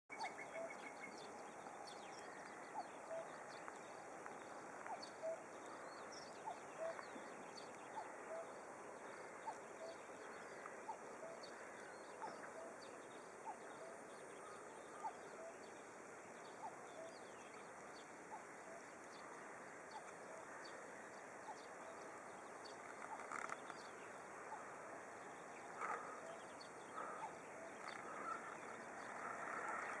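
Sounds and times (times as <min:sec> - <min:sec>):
bird chirps: 0:00.1 - 0:03.7, 0:04.8 - 0:08.5
birds chirping: 0:00.1 - 0:30.0
faint background hiss: 0:00.1 - 0:30.0.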